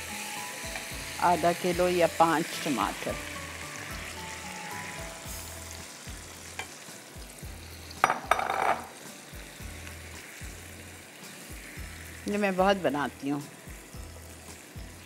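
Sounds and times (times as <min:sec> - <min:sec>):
tomatoes sizzling in oil: 0:00.0 - 0:15.0.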